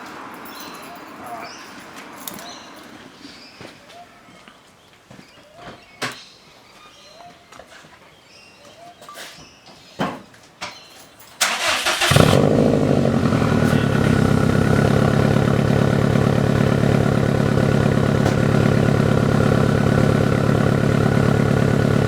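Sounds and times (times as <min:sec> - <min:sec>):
car engine cranking and idling: 0:11.4 - 0:22.0.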